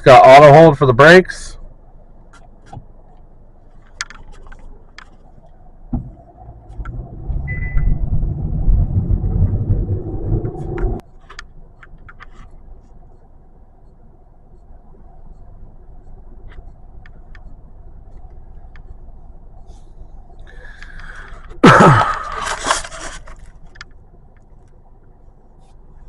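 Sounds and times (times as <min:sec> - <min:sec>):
car engine accelerating: 0:06.0 - 0:11.0
brief beep: 0:07.5 - 0:08.0.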